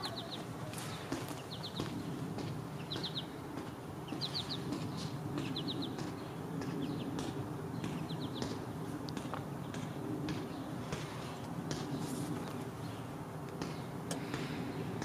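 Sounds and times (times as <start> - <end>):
small bird calling: 0.0 - 2.1, 2.8 - 3.4.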